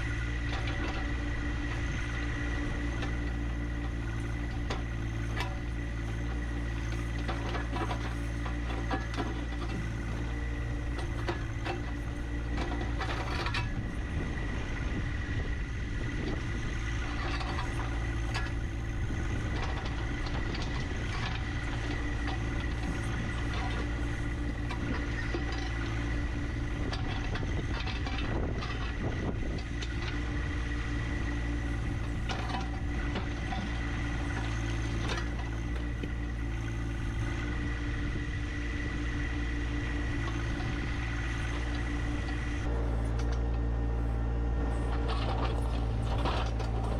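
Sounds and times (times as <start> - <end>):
tractor diesel engine running: 0.0 - 46.9
knocks and scrapes: 44.7 - 46.9.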